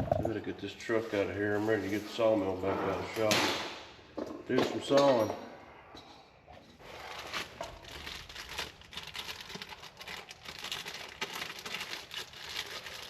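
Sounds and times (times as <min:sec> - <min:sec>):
packaging crinkling and rustling: 0:06.8 - 0:13.0.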